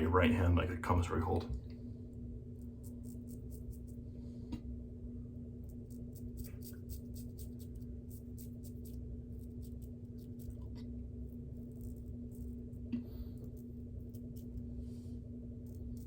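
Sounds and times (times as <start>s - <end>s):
steady low hum: 0.0s - 16.0s
razor scraping stubble: 2.5s - 4.0s, 5.6s - 14.7s, 15.6s - 16.0s.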